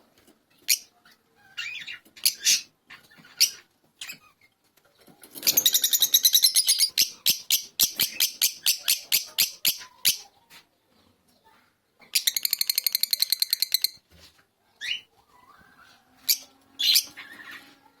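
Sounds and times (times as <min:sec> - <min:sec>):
lovebird chirping: 0:05.4 - 0:10.3, 0:12.1 - 0:14.0, 0:14.8 - 0:17.7.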